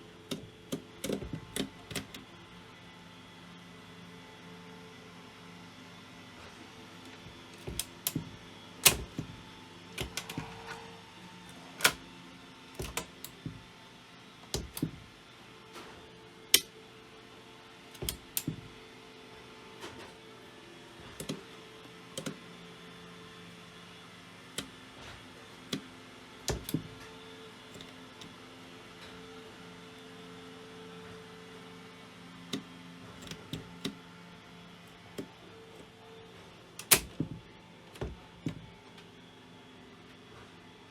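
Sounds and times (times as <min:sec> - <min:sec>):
tools clicking and knocking: 0:00.3 - 0:02.2, 0:07.6 - 0:09.4, 0:10.0 - 0:10.7, 0:12.8 - 0:13.7, 0:14.5 - 0:15.1, 0:17.9 - 0:18.7, 0:26.5 - 0:27.0, 0:36.8 - 0:38.7.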